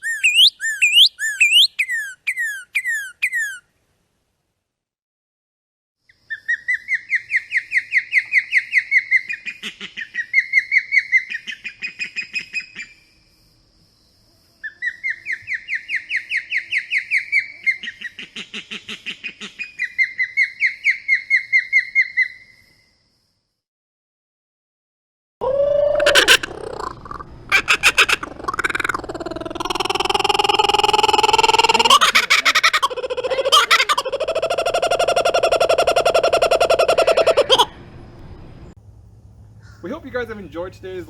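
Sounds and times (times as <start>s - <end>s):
bird calling rapid sharp notes: 0.0s - 3.6s, 25.9s - 37.8s.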